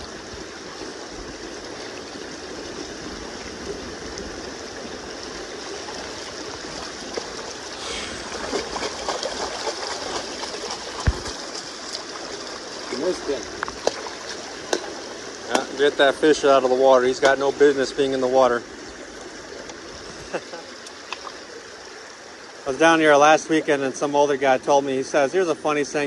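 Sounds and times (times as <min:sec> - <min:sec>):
river current running: 0:00.0 - 0:26.0
small splashes and knocks: 0:06.8 - 0:16.0, 0:17.0 - 0:17.7
sharp thump: 0:11.0 - 0:11.6.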